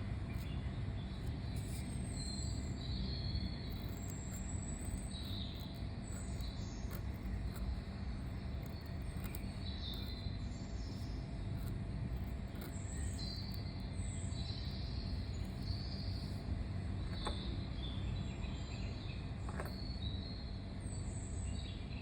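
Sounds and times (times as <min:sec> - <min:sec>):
low background rumble: 0:00.0 - 0:22.0
birds chirping: 0:00.1 - 0:22.0
pen scratching on paper: 0:01.1 - 0:02.8, 0:03.6 - 0:10.2, 0:10.9 - 0:13.8.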